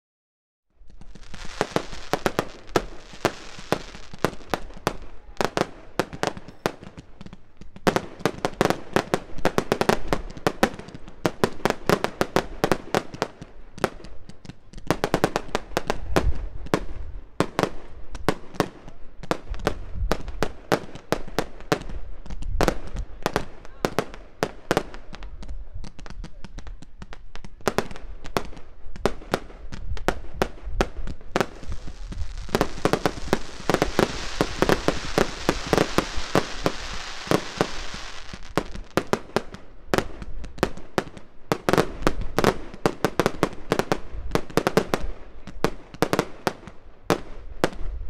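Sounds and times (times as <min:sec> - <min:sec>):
deep fireworks booms: 0:00.8 - 0:48.0
fireworks bangs and pops: 0:00.8 - 0:48.0
hissing crackle: 0:31.1 - 0:39.3.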